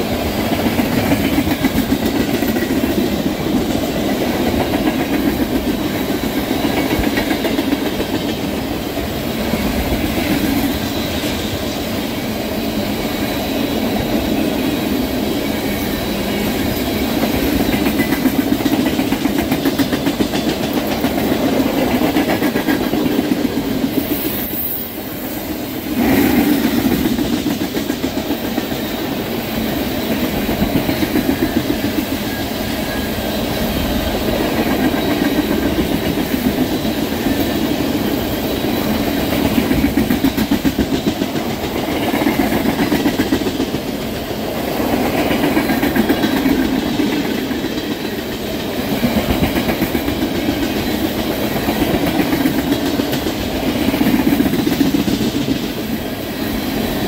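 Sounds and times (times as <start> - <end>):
freight train rolling past: 0.0 - 57.0
wheels clicking over rail joints: 16.7 - 24.1.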